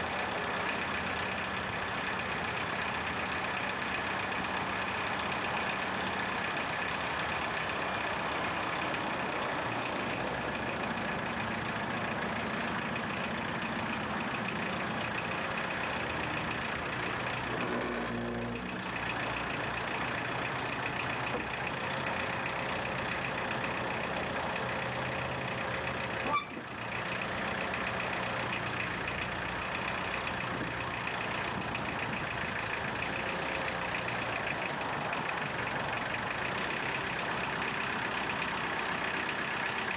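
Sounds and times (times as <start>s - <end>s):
constant whine: 0.0s - 39.9s
vehicle engine running: 0.0s - 39.9s.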